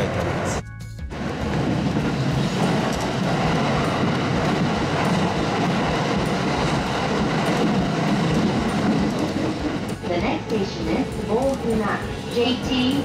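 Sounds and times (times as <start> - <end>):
rumble of wheels on rail: 0.0 - 13.0.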